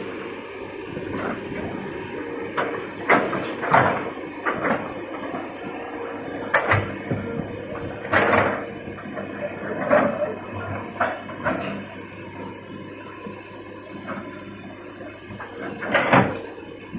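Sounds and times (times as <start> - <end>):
excavator engine running: 0.0 - 16.9
loud scraping and clanking: 3.0 - 14.4.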